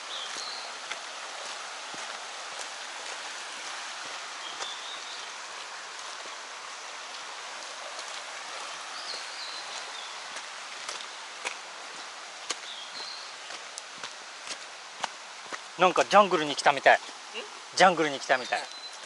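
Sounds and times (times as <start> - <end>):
stream flowing: 0.0 - 19.0
bird chirps: 18.2 - 19.0.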